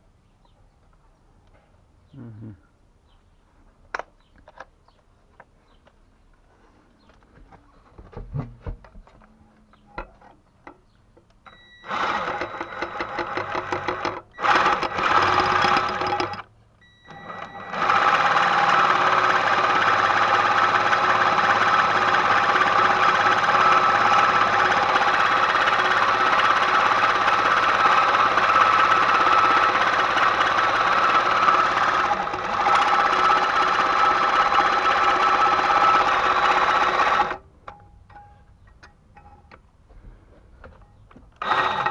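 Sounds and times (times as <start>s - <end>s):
electric power tool running: 11.8s - 16.4s, 17.1s - 37.4s, 41.4s - 41.9s.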